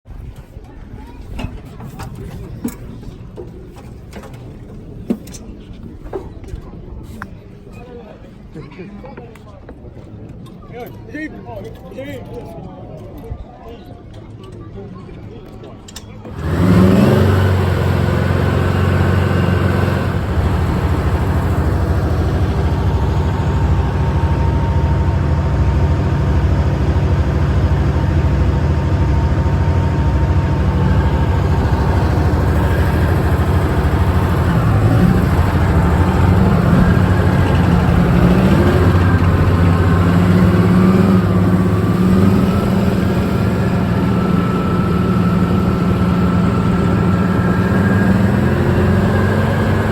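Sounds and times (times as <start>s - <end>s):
tank diesel engine running: 16.2s - 49.9s.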